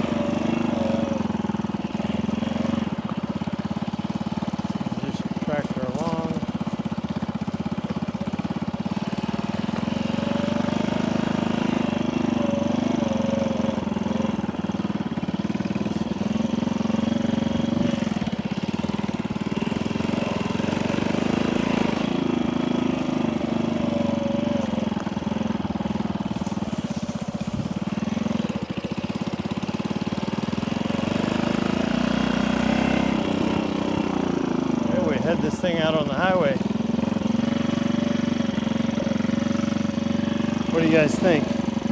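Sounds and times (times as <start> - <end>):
small engine idling: 0.0 - 41.9.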